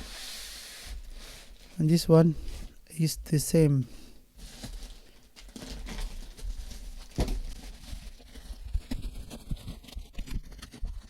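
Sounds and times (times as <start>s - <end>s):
packaging rustling: 4.4s - 11.0s.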